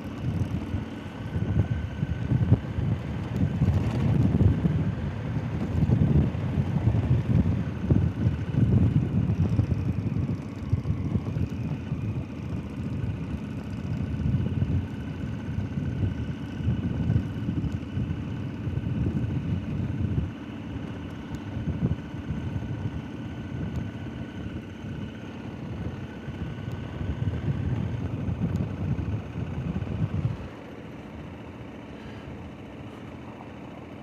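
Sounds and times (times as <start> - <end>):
wind buffeting microphone: 0.0 - 20.8, 21.4 - 30.6
motorcycle engine running: 0.0 - 34.0.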